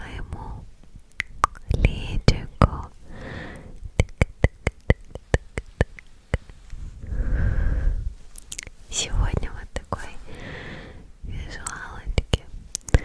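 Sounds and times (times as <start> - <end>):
sharp close-miked clicks: 1.1 - 2.0, 8.4 - 8.7, 11.6 - 13.0
soft breathy rush: 2.9 - 3.8, 6.5 - 13.0.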